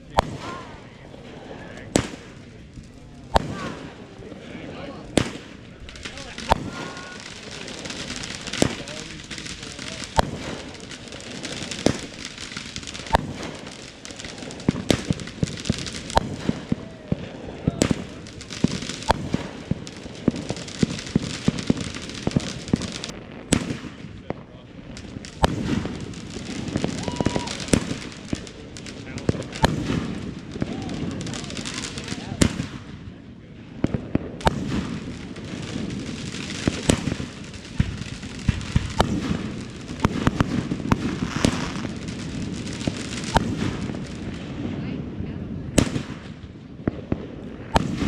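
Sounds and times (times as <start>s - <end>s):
crackling hiss: 0.0s - 44.7s
fireworks popping and banging: 0.0s - 48.0s.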